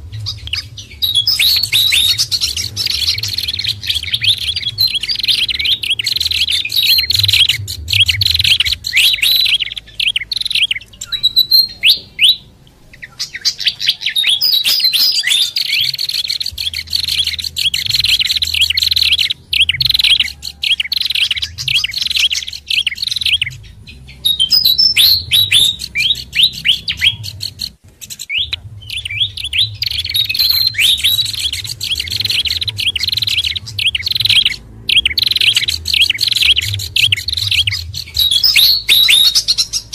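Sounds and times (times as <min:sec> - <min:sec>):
songbirds chirping and chattering: 0:00.0 - 0:39.9.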